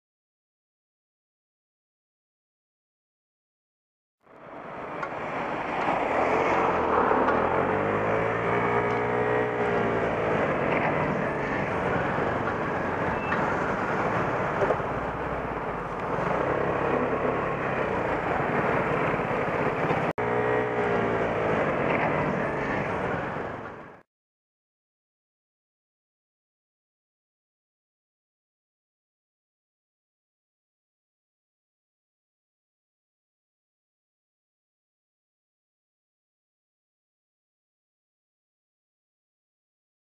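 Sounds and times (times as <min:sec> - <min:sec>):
wind and road noise: 0:04.3 - 0:24.0
scooter engine: 0:04.4 - 0:24.0.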